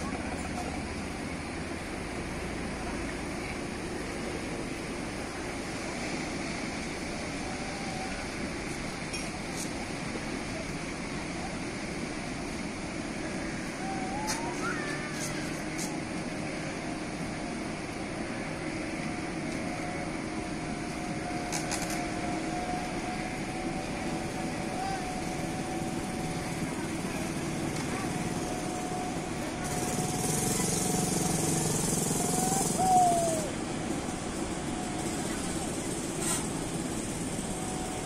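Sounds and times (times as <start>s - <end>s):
wind and sea rushing: 0.0s - 30.4s
boat engine running: 0.0s - 38.0s.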